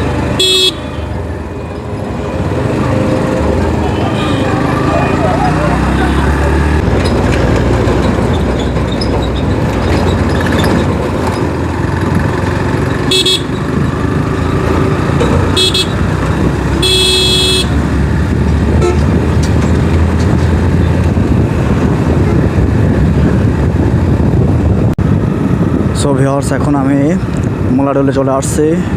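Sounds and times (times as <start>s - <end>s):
motorcycle engine and wind rumble: 0.0s - 28.9s
vehicle horn honking: 0.3s - 1.2s, 3.8s - 5.2s, 13.1s - 13.6s, 15.5s - 16.0s, 16.8s - 17.8s, 18.8s - 19.1s.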